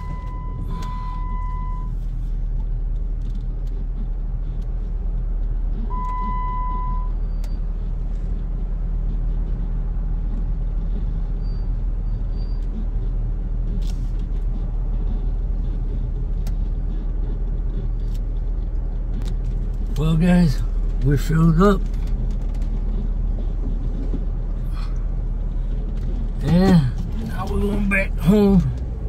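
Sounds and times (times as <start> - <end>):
short electronic beep: 0.0 - 1.9, 5.9 - 7.5
car engine running: 0.0 - 29.0.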